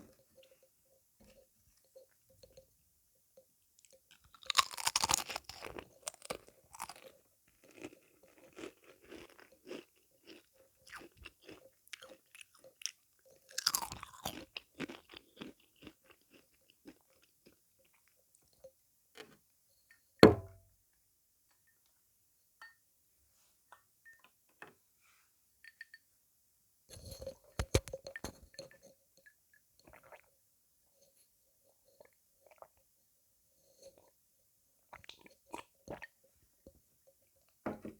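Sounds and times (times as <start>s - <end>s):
crunchy chewing: 4.3s - 18.1s
person biting crunchy sweet: 4.4s - 7.0s
sharp knock: 20.2s - 20.6s.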